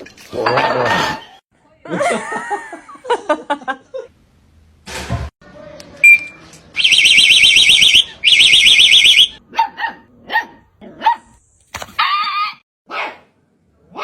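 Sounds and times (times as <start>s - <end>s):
warbling electronic alarm: 6.8s - 9.4s
dog barking: 9.5s - 11.4s, 12.9s - 13.3s.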